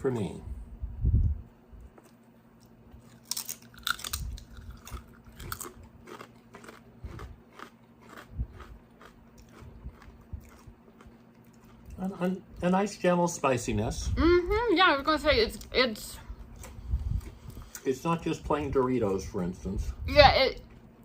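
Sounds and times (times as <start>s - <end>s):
person crunching corn chips: 3.0s - 12.1s.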